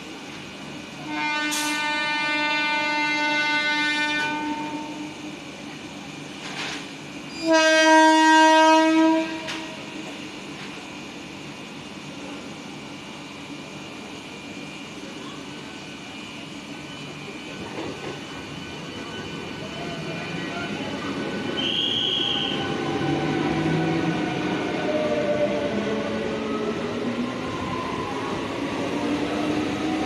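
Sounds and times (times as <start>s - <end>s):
train rail noise: 0.0s - 30.0s
high train horn note: 1.0s - 5.3s, 7.3s - 9.9s, 21.6s - 22.6s.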